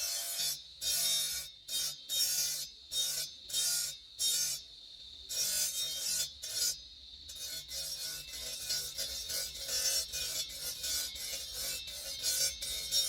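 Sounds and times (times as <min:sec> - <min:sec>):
file rasping on stone: 0:00.0 - 0:04.7, 0:05.3 - 0:13.0.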